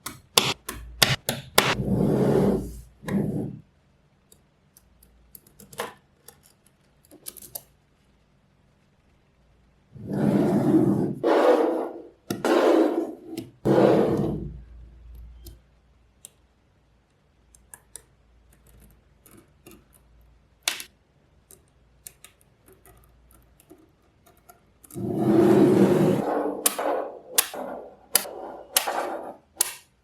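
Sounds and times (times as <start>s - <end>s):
magnetic balls rattling scrapes: 25.0s - 29.6s.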